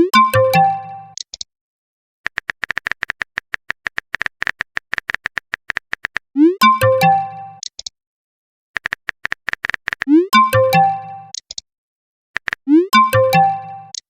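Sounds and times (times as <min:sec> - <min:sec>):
phone keyboard typing clicks: 0:02.3 - 0:07.9, 0:08.8 - 0:11.6, 0:12.4 - 0:14.0
message alert swoop and chime: 0:06.4 - 0:07.6, 0:10.1 - 0:11.3, 0:12.7 - 0:13.9.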